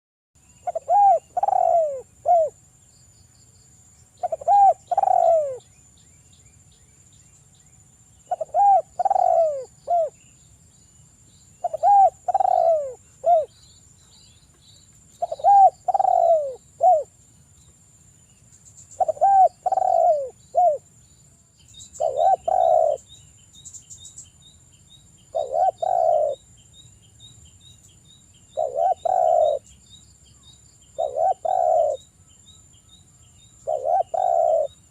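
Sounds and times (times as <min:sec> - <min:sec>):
dove cooing: 0:00.6 - 0:02.6, 0:04.2 - 0:05.6, 0:08.3 - 0:10.2, 0:11.6 - 0:13.5, 0:15.2 - 0:17.1, 0:19.0 - 0:20.8, 0:22.0 - 0:23.1, 0:25.3 - 0:26.4, 0:28.6 - 0:29.7, 0:31.0 - 0:32.0, 0:33.6 - 0:34.9.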